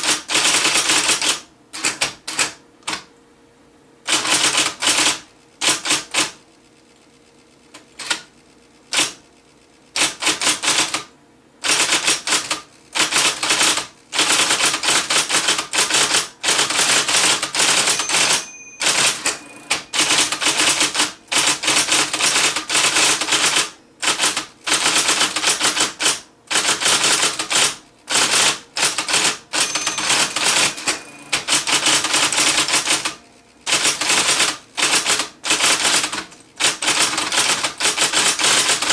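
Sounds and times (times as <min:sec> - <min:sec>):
electric typewriter typing: 0:00.0 - 0:03.1, 0:04.1 - 0:06.4, 0:07.7 - 0:09.3, 0:09.9 - 0:38.9
faint motor hum: 0:18.0 - 0:21.4, 0:29.6 - 0:34.8.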